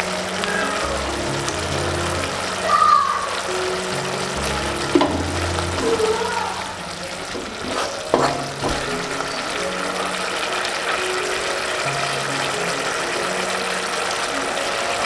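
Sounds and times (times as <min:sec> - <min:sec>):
soft background music: 0:00.0 - 0:15.0
vegetables sizzling in a wok: 0:00.0 - 0:15.0
wooden spatula scraping a pan: 0:07.2 - 0:09.2.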